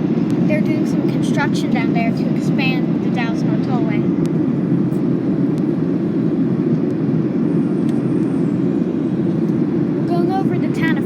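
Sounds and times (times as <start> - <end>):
airplane cabin roar: 0.0 - 11.0.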